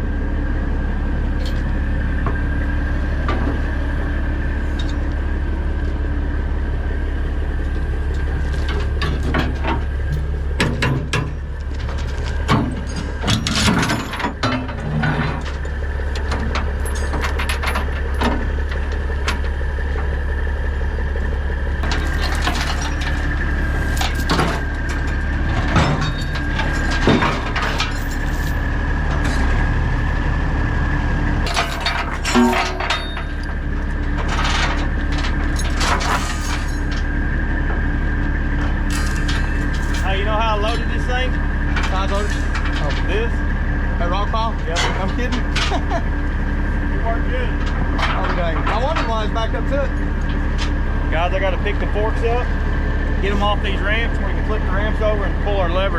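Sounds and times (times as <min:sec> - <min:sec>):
heavy diesel engine running: 0:00.0 - 0:55.9
metal clanks and knocks: 0:08.2 - 0:20.1, 0:21.8 - 0:29.7, 0:31.4 - 0:43.5, 0:44.2 - 0:46.2, 0:47.5 - 0:51.0.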